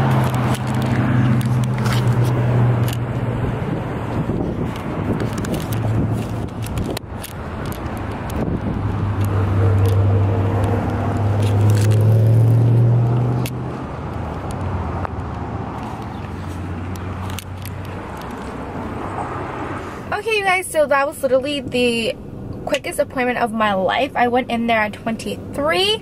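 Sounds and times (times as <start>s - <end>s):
car engine humming: 0.0s - 26.0s.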